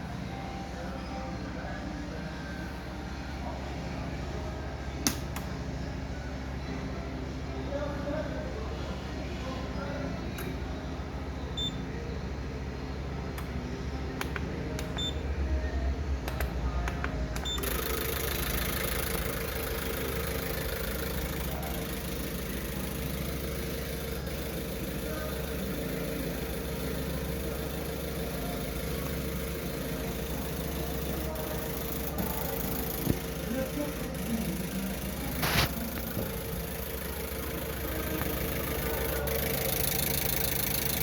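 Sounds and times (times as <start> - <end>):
diesel engine starting and idling: 17.4 - 41.0.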